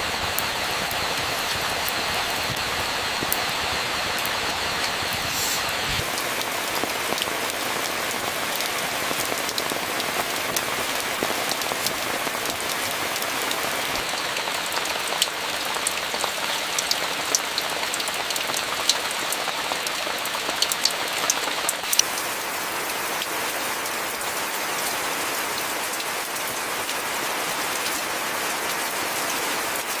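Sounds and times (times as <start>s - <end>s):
steady rain hiss: 0.0s - 30.0s
drops dripping on a surface: 6.0s - 22.2s.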